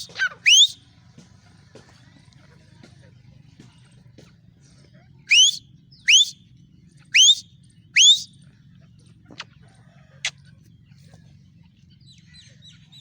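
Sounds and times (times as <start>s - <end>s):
bird whistled calls: 0.0s - 0.8s, 5.3s - 6.4s, 7.1s - 8.3s.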